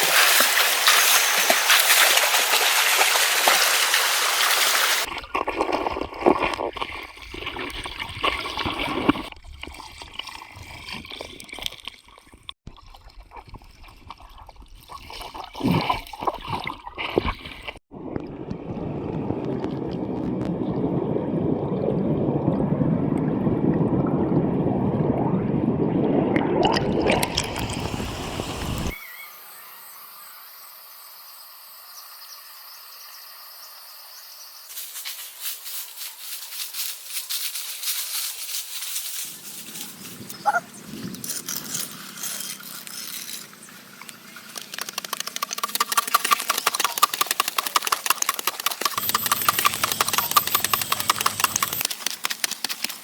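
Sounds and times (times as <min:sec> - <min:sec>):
running water: 0:00.0 - 0:06.0, 0:26.6 - 0:29.0.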